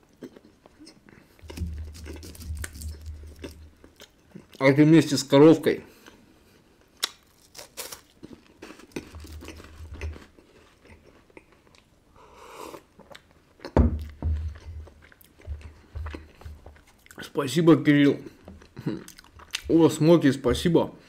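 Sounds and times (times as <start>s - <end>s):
crunchy chewing of wafers: 0.0s - 4.6s, 6.8s - 12.0s.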